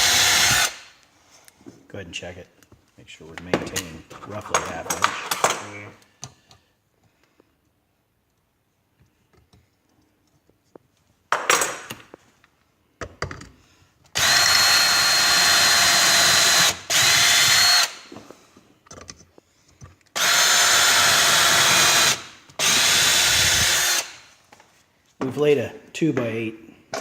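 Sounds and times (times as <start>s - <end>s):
power drill whining through rubber: 0.0s - 0.9s, 14.2s - 18.1s, 20.2s - 24.2s.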